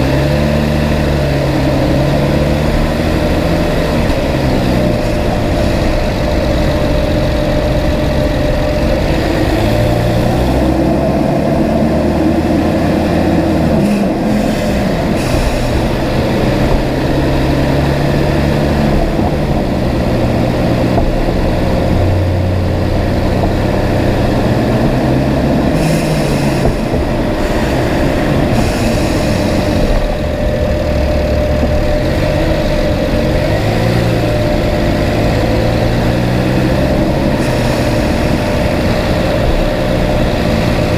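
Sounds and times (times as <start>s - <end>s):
car engine running: 0.0s - 40.9s
road noise: 0.0s - 40.9s
steady hum: 0.8s - 40.9s.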